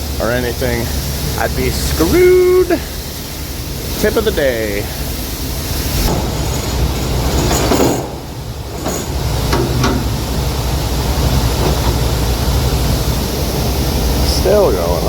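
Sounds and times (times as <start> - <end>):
knocks and clatters: 6.1 - 10.4, 11.2 - 12.3.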